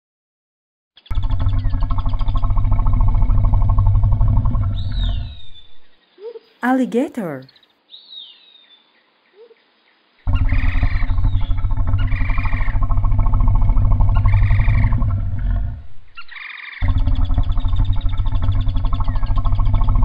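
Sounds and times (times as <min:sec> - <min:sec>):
alligator bellowing: 0:01.1 - 0:05.8, 0:10.2 - 0:20.0.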